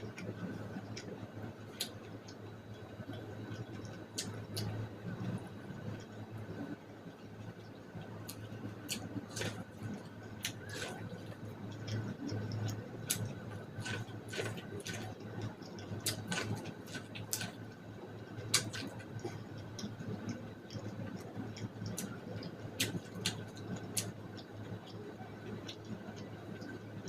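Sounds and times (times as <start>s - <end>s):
wet chewing and lip smacks: 1.7s - 4.8s, 8.2s - 17.8s, 18.5s - 26.8s.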